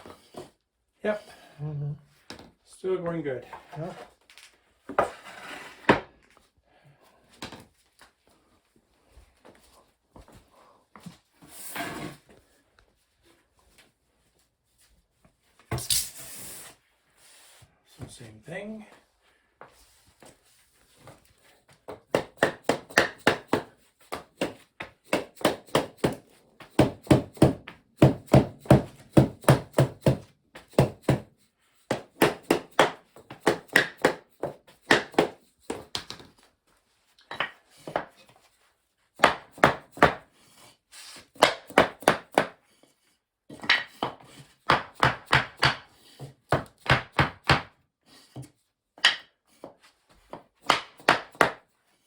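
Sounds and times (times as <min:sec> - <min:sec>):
hammer knocking floor tile: 0:21.9 - 0:31.3, 0:31.9 - 0:36.3, 0:39.2 - 0:40.2, 0:41.3 - 0:42.6, 0:43.5 - 0:47.8, 0:50.3 - 0:51.6.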